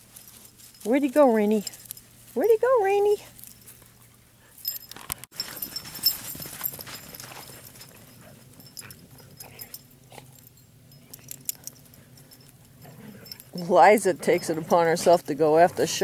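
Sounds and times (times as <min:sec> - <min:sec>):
dogs scrabbling in dry dirt: 0:03.5 - 0:16.0.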